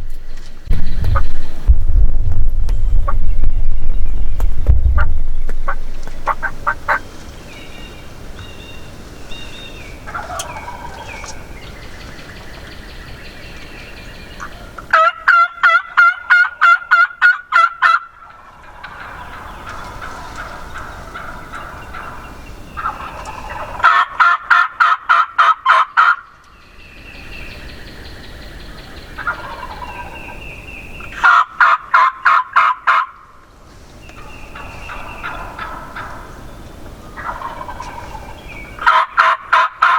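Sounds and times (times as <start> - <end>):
songbirds whistling: 2.8 - 14.8, 26.4 - 31.3, 33.9 - 38.9
turkey calling: 3.0 - 26.5, 27.6 - 33.3, 34.0 - 39.9.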